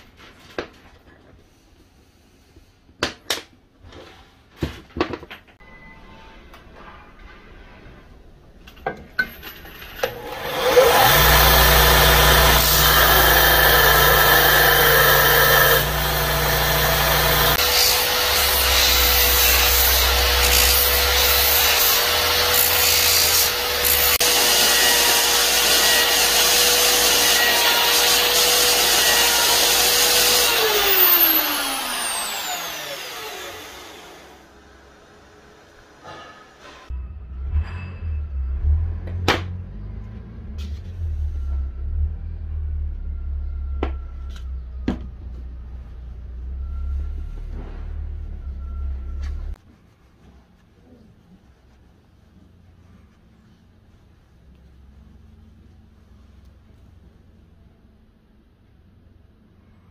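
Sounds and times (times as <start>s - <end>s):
sanding disc grinding: 10.3s - 34.5s.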